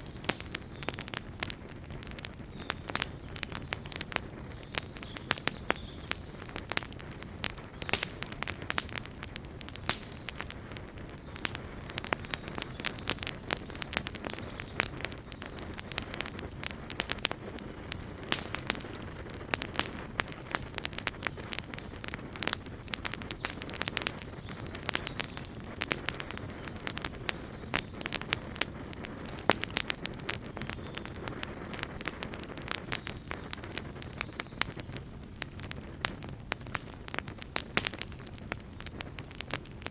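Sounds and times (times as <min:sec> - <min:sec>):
campfire crackling and popping: 0:00.0 - 0:39.9
low rumble of flames: 0:00.0 - 0:39.9.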